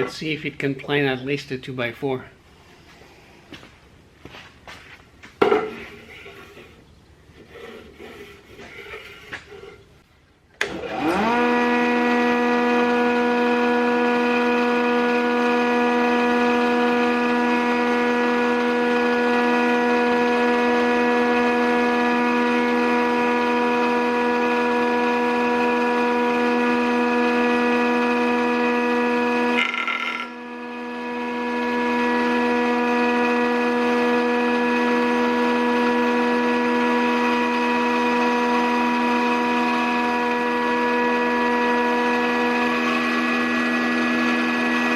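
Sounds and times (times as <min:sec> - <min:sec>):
planer motor whining: 0:10.6 - 0:44.9.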